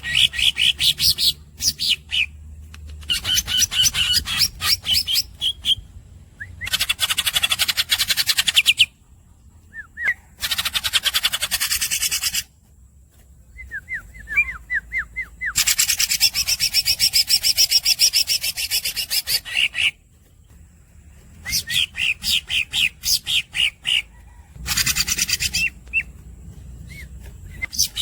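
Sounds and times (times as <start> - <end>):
bird singing rattling trills: 0.0 - 28.0
whistled bird squeaks: 21.4 - 23.7.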